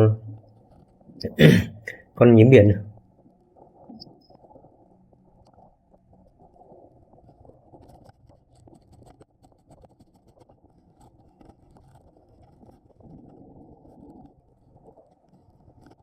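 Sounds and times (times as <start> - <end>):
underwater clicks and crackles: 3.3 - 16.0.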